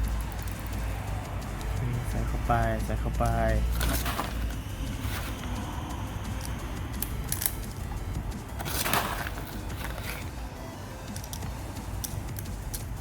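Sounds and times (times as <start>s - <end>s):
plastic pellets rattling and clicking: 0.0s - 10.4s, 11.0s - 13.0s
sharp clicks: 4.4s - 8.7s.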